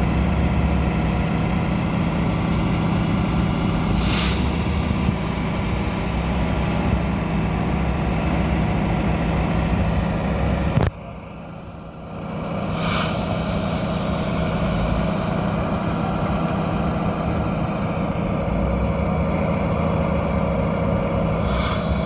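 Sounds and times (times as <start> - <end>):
truck diesel engine running: 0.0 - 22.0
short hiss: 12.7 - 13.4, 21.4 - 22.0.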